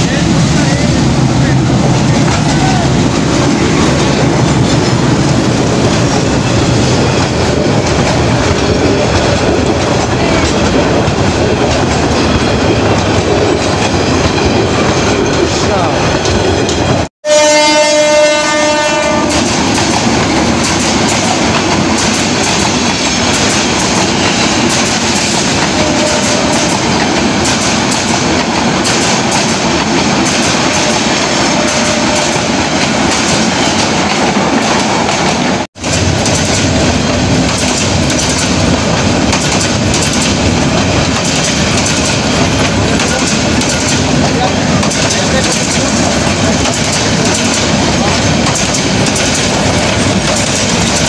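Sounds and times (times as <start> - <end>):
train rumbling past: 0.0 - 51.0
train horn: 17.2 - 19.6, 25.7 - 26.9, 30.7 - 32.7
wheels clattering over rail joints: 31.6 - 51.0.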